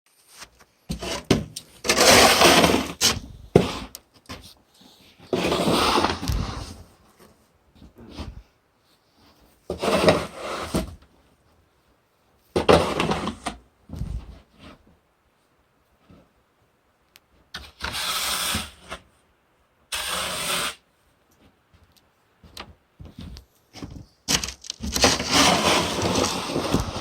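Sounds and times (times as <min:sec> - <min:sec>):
rough scraping strokes: 0:00.1 - 0:03.9, 0:05.3 - 0:06.8, 0:17.8 - 0:19.0, 0:19.9 - 0:20.8, 0:24.9 - 0:27.0.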